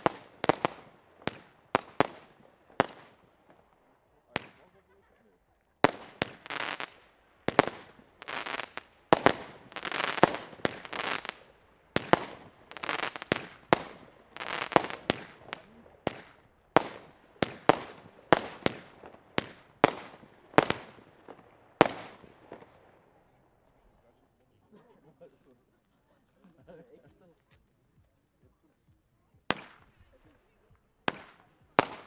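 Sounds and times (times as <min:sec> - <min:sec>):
firework crackle: 0:00.0 - 0:05.0, 0:05.7 - 0:23.0, 0:29.5 - 0:30.4, 0:31.1 - 0:32.0.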